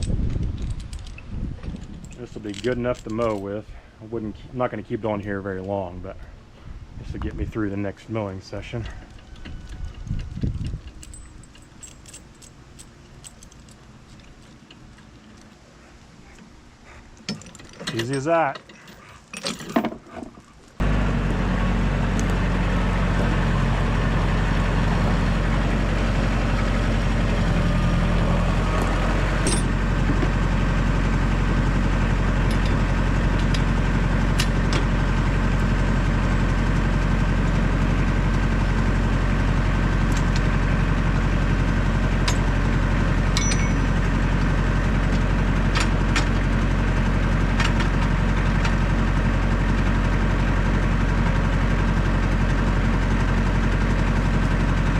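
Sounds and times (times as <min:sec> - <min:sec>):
tractor engine running: 0:20.8 - 0:54.9.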